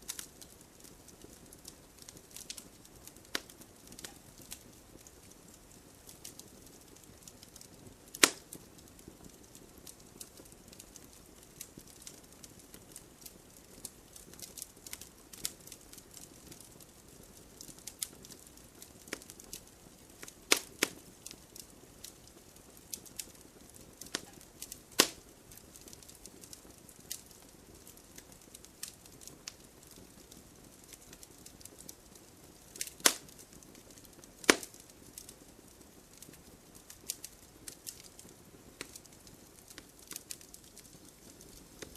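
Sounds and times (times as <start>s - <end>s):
fire hissing: 0.0s - 12.2s, 20.2s - 29.9s, 32.1s - 41.9s
fire crackling and popping: 0.0s - 41.9s.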